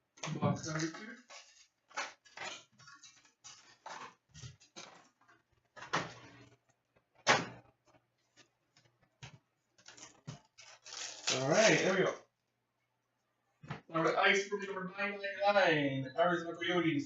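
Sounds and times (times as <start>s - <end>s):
packaging rustling: 0.7s - 5.4s, 9.7s - 12.0s.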